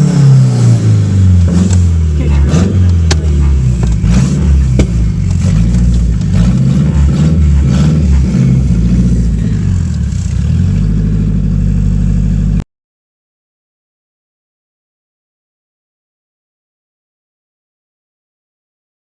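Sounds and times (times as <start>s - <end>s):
car engine revving: 0.0s - 12.6s
sharp crack: 2.5s - 9.2s.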